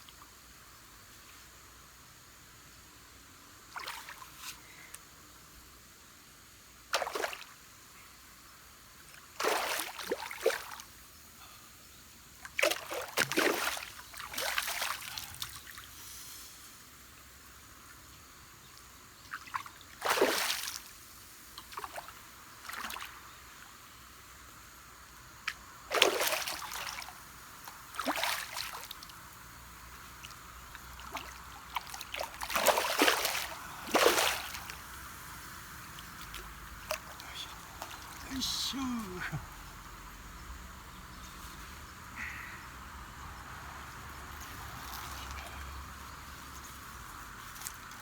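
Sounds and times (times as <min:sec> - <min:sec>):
river hiss: 0:00.0 - 0:48.0
water splashing: 0:19.4 - 0:20.8, 0:25.9 - 0:29.1, 0:30.2 - 0:39.4.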